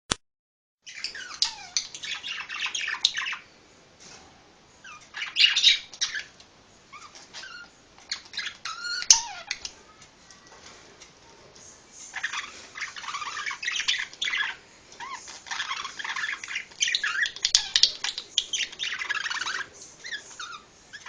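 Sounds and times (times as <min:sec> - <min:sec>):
parrot chattering and squawking: 0:00.9 - 0:03.4, 0:04.8 - 0:09.7, 0:12.1 - 0:21.0.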